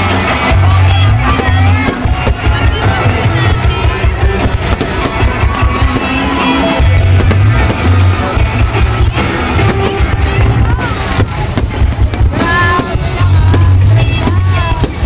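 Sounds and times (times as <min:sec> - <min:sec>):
fireworks bangs and crackles: 0:00.0 - 0:15.0
loud music with deep bass: 0:00.0 - 0:15.0.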